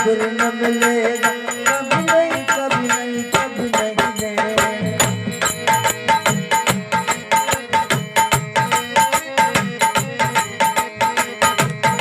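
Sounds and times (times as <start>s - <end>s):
dholak drumming: 0.0s - 12.0s.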